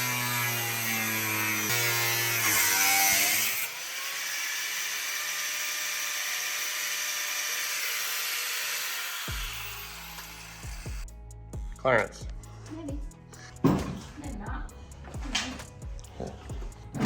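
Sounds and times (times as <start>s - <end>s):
power tool cutting sheet metal: 0.0s - 11.0s.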